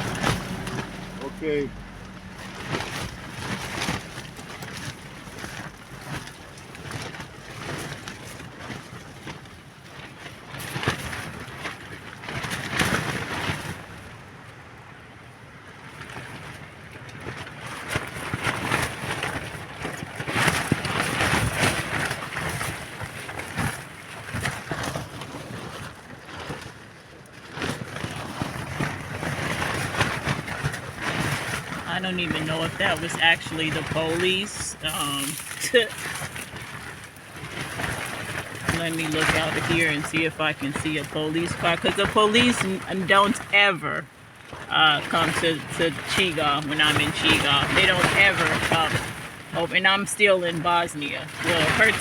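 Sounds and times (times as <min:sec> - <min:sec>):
wind buffeting microphone: 0:00.0 - 0:26.7
short rustles and crackles: 0:27.4 - 0:43.4.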